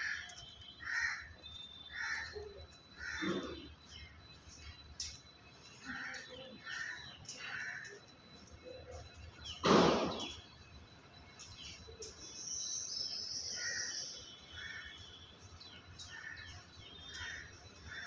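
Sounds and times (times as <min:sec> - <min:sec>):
birds calling: 0:00.0 - 0:10.7, 0:11.3 - 0:18.0
loud harsh noise: 0:09.6 - 0:10.4.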